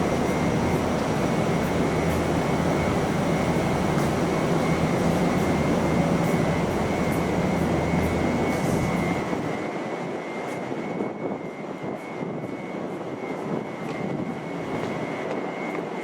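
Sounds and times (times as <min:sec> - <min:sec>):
large vehicle machinery rumble: 0:00.0 - 0:09.6
constant high whine: 0:00.0 - 0:16.0.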